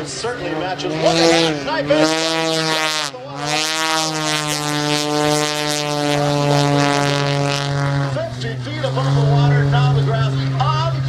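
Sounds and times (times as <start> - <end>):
propeller airplane engine: 0.0 - 11.0.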